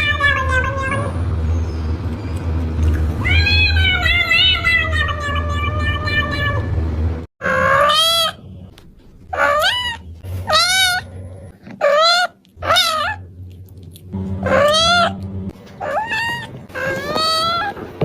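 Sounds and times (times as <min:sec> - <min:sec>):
cat meowing: 0:03.2 - 0:06.7, 0:09.3 - 0:11.1, 0:11.8 - 0:13.2, 0:14.4 - 0:15.2, 0:15.8 - 0:17.8.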